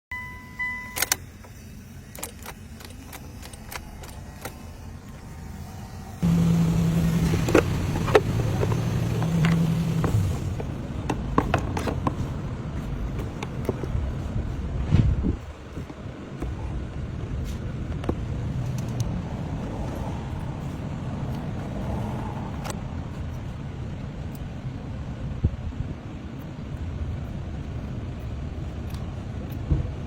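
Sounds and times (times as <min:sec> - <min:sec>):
car engine starting and running: 0:00.2 - 0:30.0.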